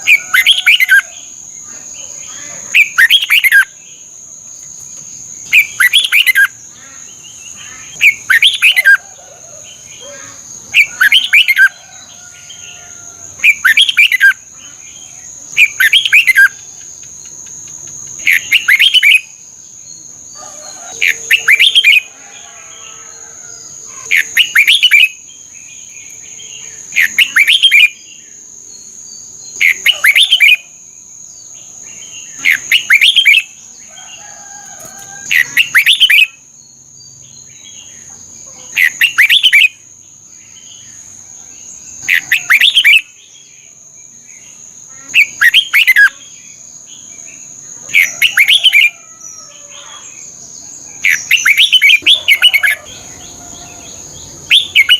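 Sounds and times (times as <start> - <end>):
bird singing whistled phrases: 35.4 - 36.4, 38.8 - 39.8, 42.2 - 43.1, 51.1 - 52.9, 54.5 - 54.9.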